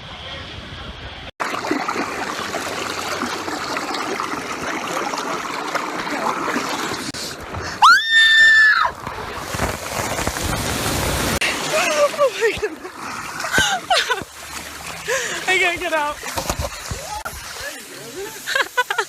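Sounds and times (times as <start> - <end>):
water rushing and splashing: 1.4 - 19.0.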